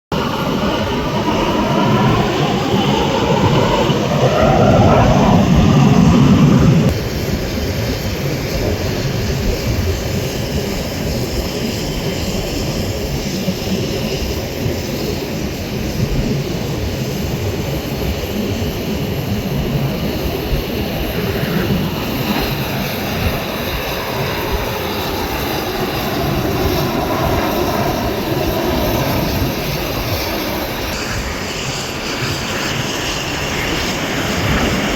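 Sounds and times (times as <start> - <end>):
jet roar: 0.0 - 34.9
jets flying past: 0.1 - 10.0, 18.6 - 34.9.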